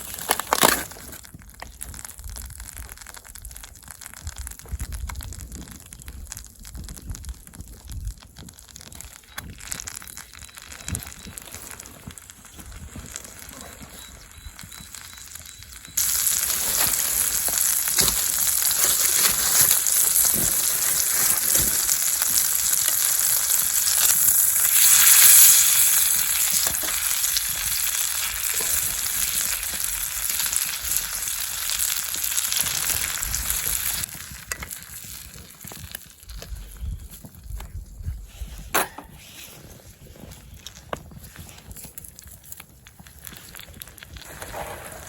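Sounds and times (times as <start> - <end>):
steak sizzling in a pan: 9.5 - 36.0.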